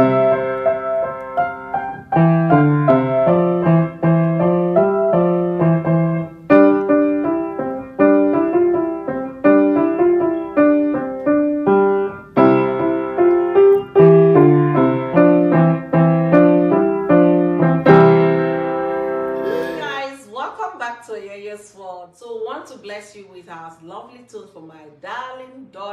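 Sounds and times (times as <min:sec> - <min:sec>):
piano tune: 0:00.0 - 0:20.0.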